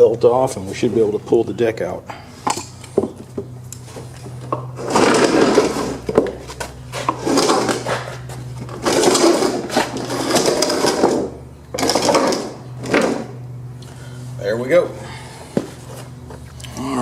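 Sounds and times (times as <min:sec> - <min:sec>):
steady low hum: 0:00.0 - 0:17.0
metal mower deck scraping and rattling: 0:04.8 - 0:13.4.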